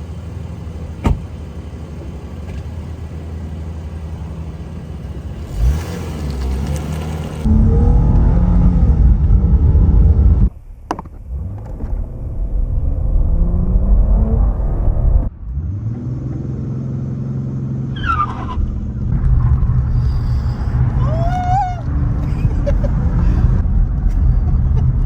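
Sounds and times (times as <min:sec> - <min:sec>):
car engine revving: 0:04.8 - 0:10.5, 0:11.2 - 0:25.0.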